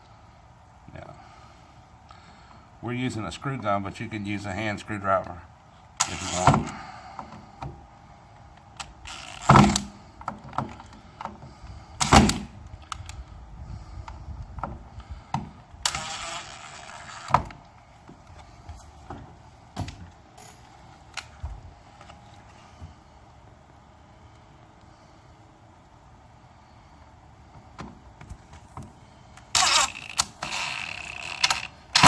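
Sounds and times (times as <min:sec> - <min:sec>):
cordless screw gun whirring: 0:08.8 - 0:09.9, 0:15.8 - 0:17.5, 0:29.5 - 0:32.0.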